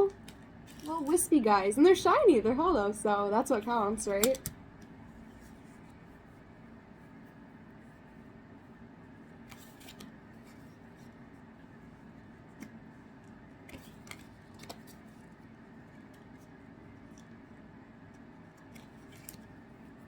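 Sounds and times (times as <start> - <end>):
low room noise: 0.0 - 20.0
trading card packaging rustles: 0.2 - 1.4.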